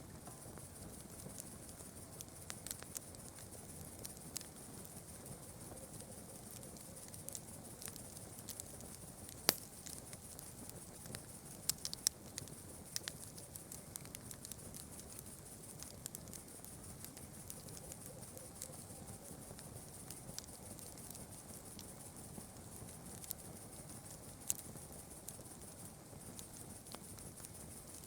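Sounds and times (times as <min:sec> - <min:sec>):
campfire crackling: 0:00.0 - 0:28.0
steady high hiss: 0:00.0 - 0:28.0.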